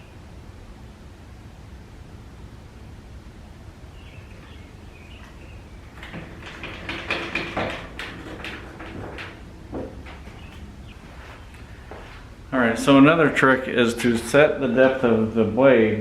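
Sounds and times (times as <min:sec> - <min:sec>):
faint high chirping: 0:03.9 - 0:06.0
tools and wood knocking: 0:04.4 - 0:12.0.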